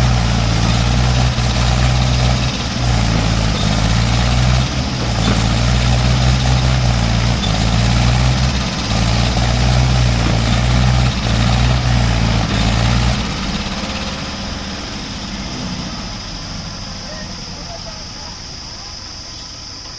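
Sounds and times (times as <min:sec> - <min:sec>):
tractor engine straining: 0:00.0 - 0:19.9.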